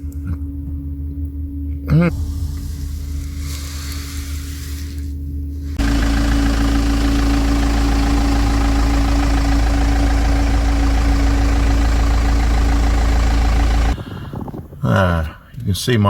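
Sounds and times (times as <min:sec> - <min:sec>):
van engine running: 0:02.2 - 0:14.2.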